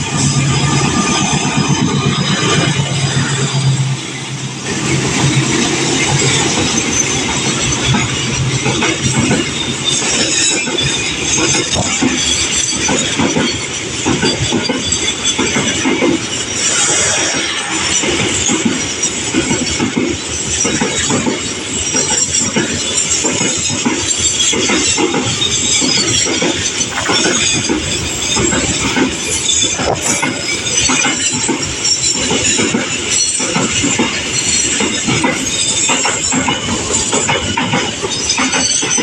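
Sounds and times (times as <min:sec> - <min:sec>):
train wheels clattering over rail joints: 0:00.0 - 0:39.0
hissing screech: 0:14.3 - 0:19.4, 0:24.1 - 0:36.0.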